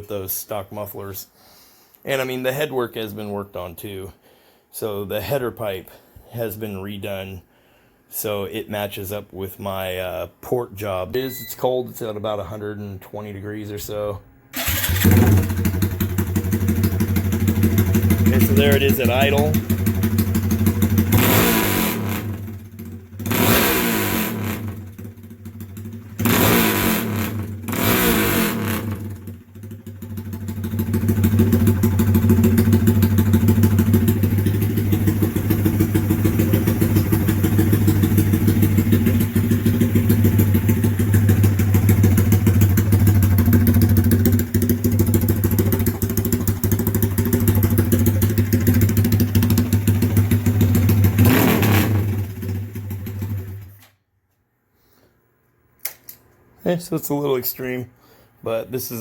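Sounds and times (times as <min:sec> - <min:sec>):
motorcycle engine blipping and running: 0:14.6 - 0:53.8.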